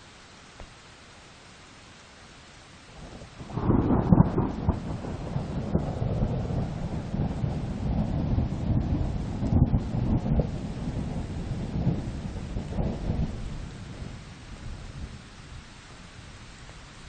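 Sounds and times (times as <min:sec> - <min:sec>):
rain falling: 0:00.0 - 0:17.0
deep uneven rumble: 0:03.1 - 0:16.9.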